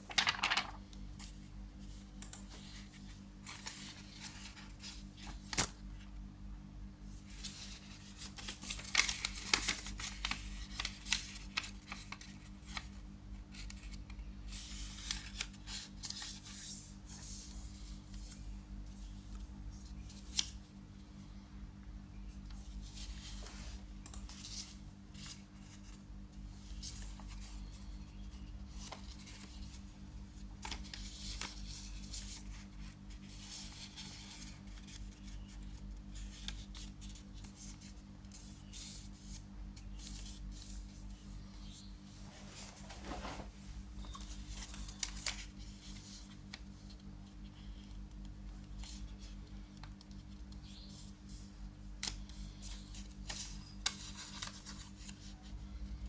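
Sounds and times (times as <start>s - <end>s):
paper rustling and crackling: 0.0s - 1.3s, 2.5s - 5.8s, 7.3s - 17.5s, 26.6s - 29.8s, 30.4s - 41.3s, 42.4s - 55.6s.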